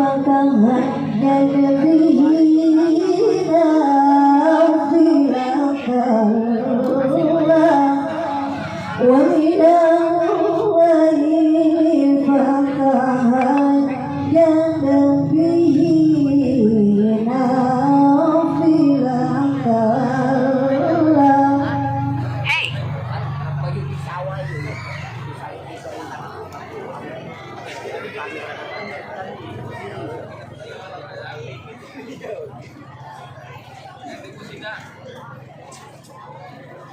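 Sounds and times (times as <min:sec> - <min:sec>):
woman reciting melodically: 0:00.0 - 0:22.8.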